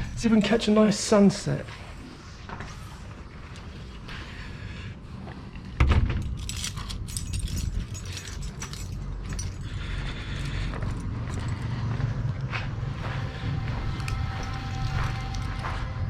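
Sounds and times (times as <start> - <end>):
steady low rumble: 0.0 - 16.0
keys jangling: 6.2 - 11.8, 13.0 - 15.8.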